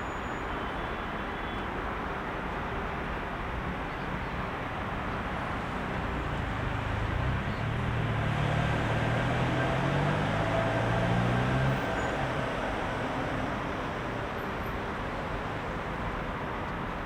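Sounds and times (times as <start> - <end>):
heavy road traffic: 0.0 - 17.0
vehicle engine hum approaching: 5.3 - 15.6.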